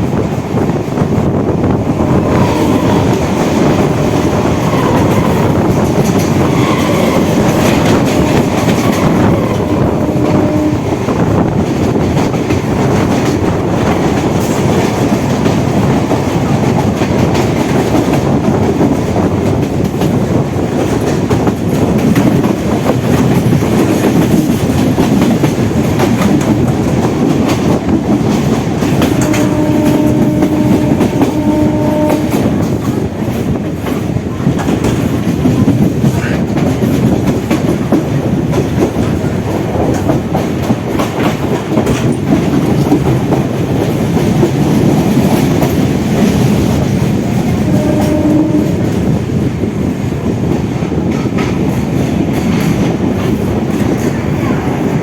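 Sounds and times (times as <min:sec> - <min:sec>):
train wheels clattering over rail joints: 0:00.0 - 0:55.0
train horn: 0:01.6 - 0:11.4, 0:29.0 - 0:33.4, 0:47.4 - 0:49.2.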